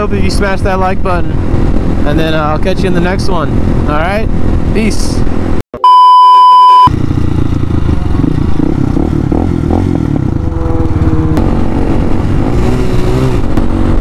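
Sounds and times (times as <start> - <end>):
wind rumbling on microphone: 0.0 - 5.6, 7.0 - 14.0
motorcycle engine running: 6.9 - 14.0.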